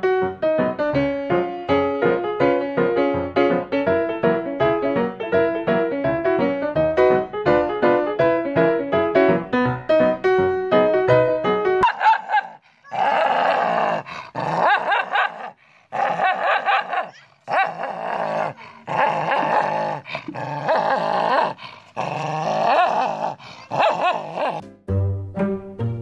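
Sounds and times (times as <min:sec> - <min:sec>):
piano music: 0:00.0 - 0:11.8, 0:24.6 - 0:26.0
dogs snarling and growling: 0:11.8 - 0:24.6.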